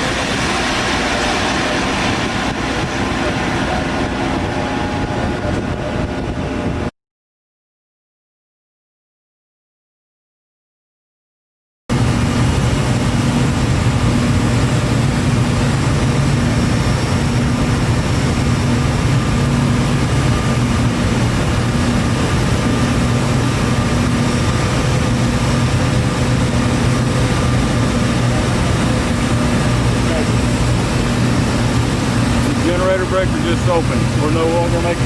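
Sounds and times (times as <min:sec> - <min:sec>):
industrial drone with deep hum: 0:00.0 - 0:06.9, 0:11.9 - 0:35.0.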